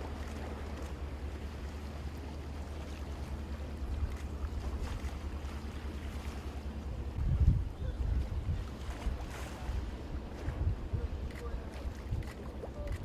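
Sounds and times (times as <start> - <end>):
steady low rumble: 0.0 - 13.0
wind buffeting microphone: 7.1 - 13.0.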